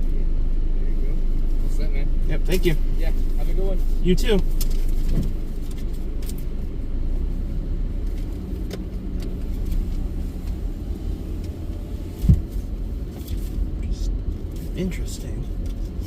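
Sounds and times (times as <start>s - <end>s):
car cabin low rumble: 0.0s - 16.0s
short low thump: 12.2s - 12.5s.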